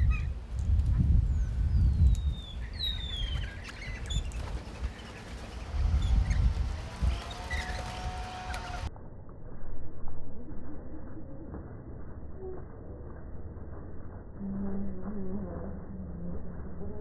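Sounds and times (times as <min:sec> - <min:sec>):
birds whistling and chirping: 0:00.0 - 0:00.3, 0:01.3 - 0:08.9
loud low rumble: 0:05.6 - 0:17.0.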